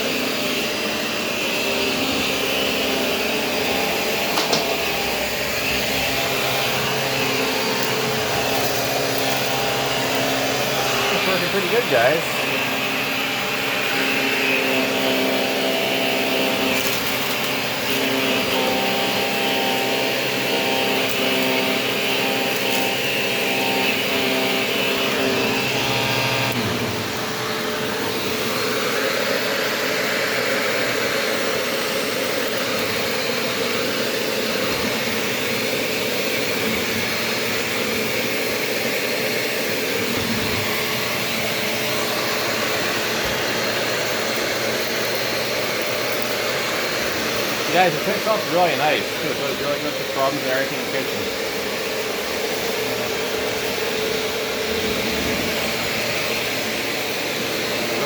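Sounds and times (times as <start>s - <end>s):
upright vacuum cleaner running: 0.0s - 58.0s.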